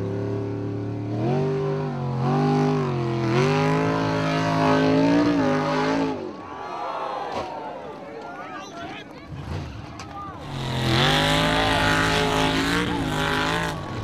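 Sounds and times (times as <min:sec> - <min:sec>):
buggy engine at high revs: 0:00.0 - 0:06.4, 0:10.4 - 0:14.0.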